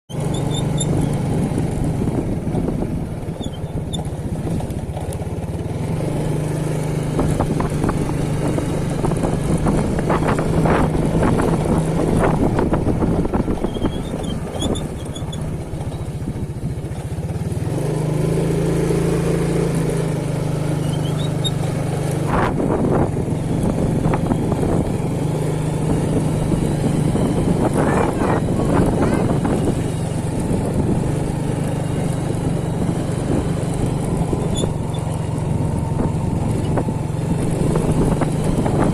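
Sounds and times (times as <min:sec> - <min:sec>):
wind on microphone: 0:07.0 - 0:16.6, 0:22.1 - 0:38.9.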